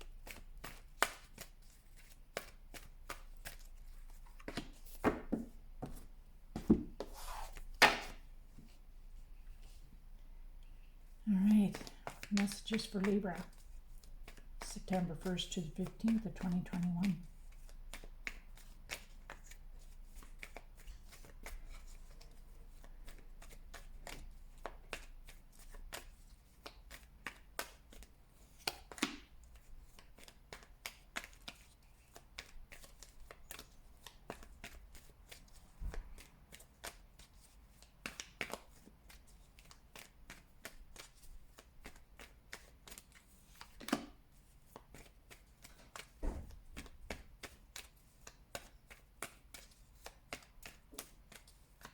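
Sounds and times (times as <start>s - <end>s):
cards being shuffled: 0.1s - 8.2s, 11.6s - 35.6s, 36.2s - 51.9s.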